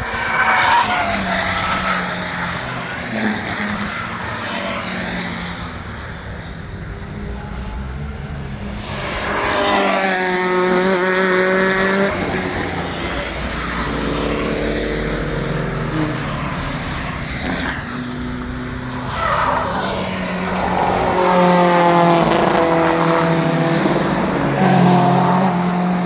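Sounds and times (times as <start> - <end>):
race car engines running: 0.0 - 26.0
car engine revving: 8.4 - 26.0.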